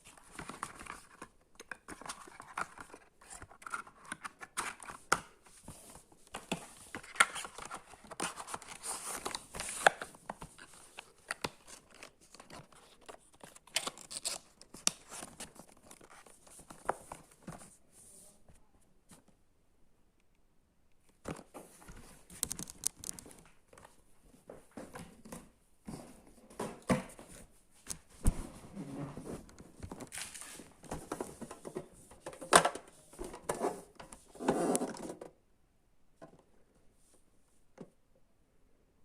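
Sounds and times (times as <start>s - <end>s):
packaging rustling and crinkling: 21.9s - 23.5s.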